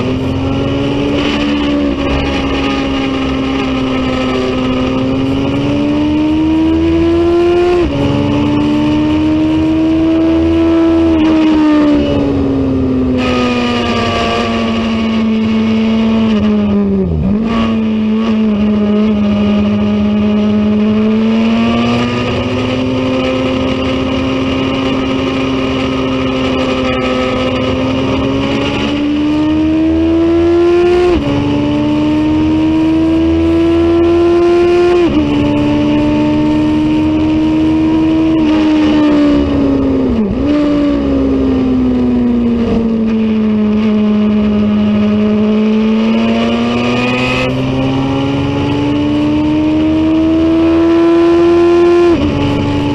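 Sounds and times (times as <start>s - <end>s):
racing motorcycle engine revving: 0.0s - 52.9s.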